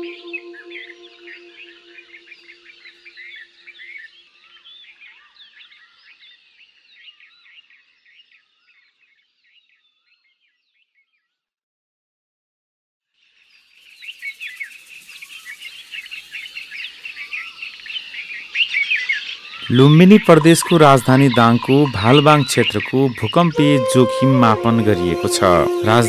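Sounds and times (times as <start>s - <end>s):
small birds chirping: 13.3s - 23.6s
light hiss: 13.8s - 17.8s.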